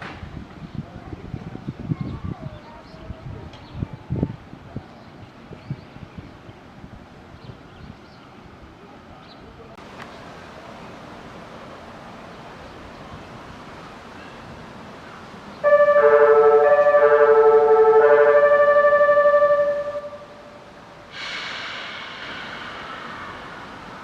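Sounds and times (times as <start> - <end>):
train passing rushing noise: 9.8 - 24.0
train horn chord: 15.6 - 20.6.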